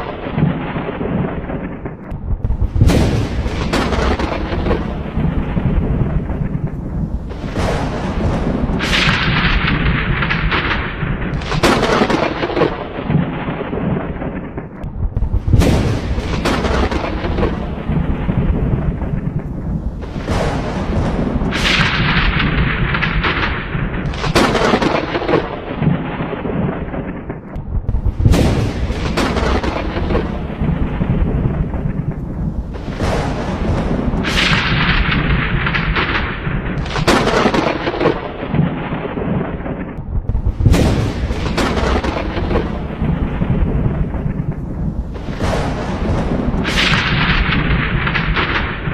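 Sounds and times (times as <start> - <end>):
thunder cracks and rumble: 0.0 - 48.9.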